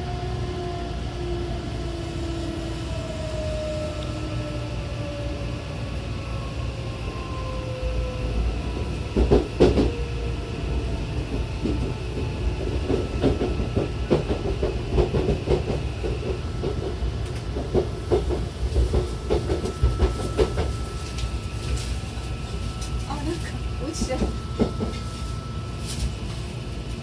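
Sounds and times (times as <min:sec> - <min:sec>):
train motor whine: 0:06.4 - 0:27.0.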